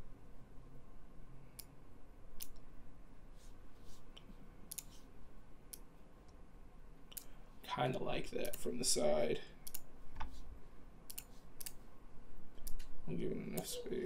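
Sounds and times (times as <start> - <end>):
computer mouse clicking: 2.4 - 2.7, 4.1 - 5.0, 7.1 - 7.3, 8.4 - 8.7, 9.6 - 10.4, 11.1 - 11.8, 12.6 - 13.7.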